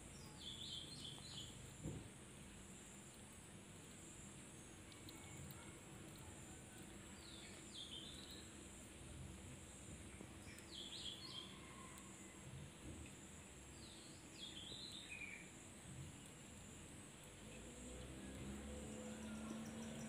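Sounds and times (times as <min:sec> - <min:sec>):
faint small bird chirping: 0:00.1 - 0:01.6, 0:04.5 - 0:08.6, 0:10.1 - 0:12.4, 0:13.7 - 0:16.4.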